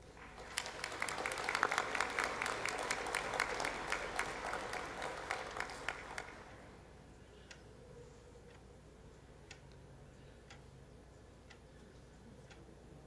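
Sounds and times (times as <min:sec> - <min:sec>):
audience applauding: 0:00.1 - 0:06.7.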